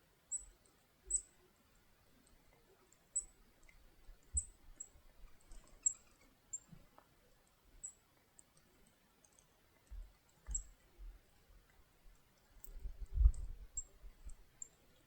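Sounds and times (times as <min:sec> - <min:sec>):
songbirds chip notes: 0:00.1 - 0:11.2, 0:12.6 - 0:15.0
faint clicks: 0:00.4 - 0:10.9
dull low thumps: 0:12.8 - 0:14.4.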